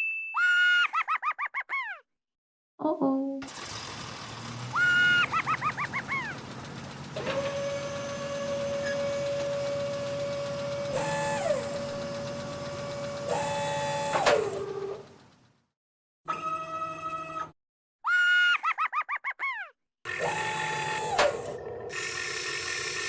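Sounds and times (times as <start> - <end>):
toy excavator motors whining: 3.4 - 15.1, 16.3 - 17.6, 20.1 - 23.0
second motor whirring: 3.4 - 15.2, 16.3 - 17.6, 20.1 - 23.0.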